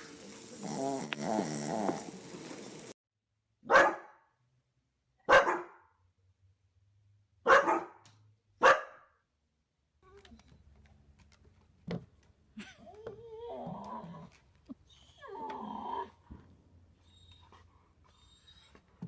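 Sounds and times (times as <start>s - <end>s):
dog barking: 3.6s - 4.2s, 5.3s - 5.9s, 7.4s - 8.0s, 8.6s - 9.1s.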